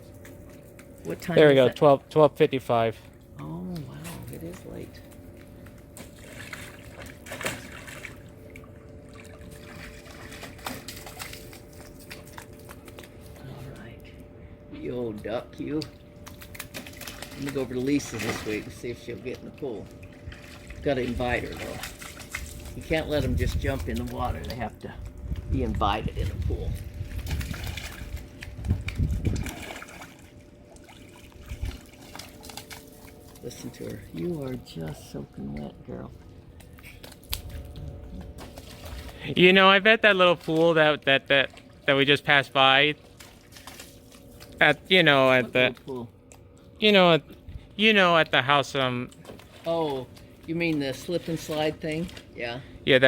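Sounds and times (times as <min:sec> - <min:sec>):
water sloshing and trickling: 0:00.0 - 0:53.0
small water splashes: 0:03.0 - 0:13.4, 0:15.8 - 0:25.2, 0:26.2 - 0:35.0, 0:36.7 - 0:39.4, 0:40.0 - 0:46.8, 0:48.9 - 0:52.5.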